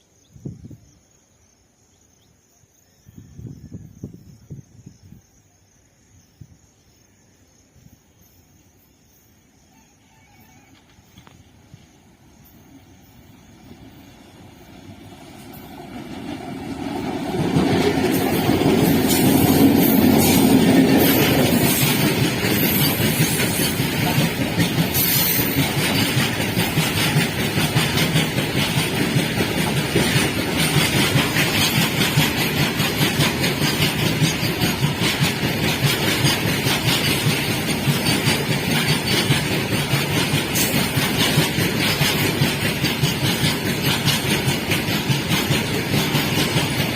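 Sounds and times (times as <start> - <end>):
train passing: 7.7 - 46.9
wheels clattering on track: 10.8 - 46.9.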